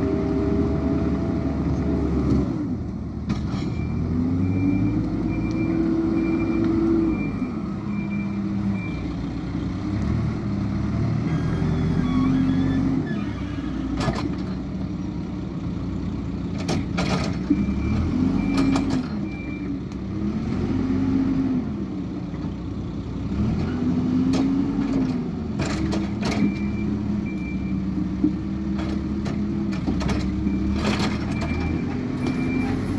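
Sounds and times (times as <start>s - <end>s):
diesel engine revving: 0.0s - 32.9s
reversing alarm beeping: 3.8s - 9.1s, 26.4s - 27.9s, 30.4s - 32.9s.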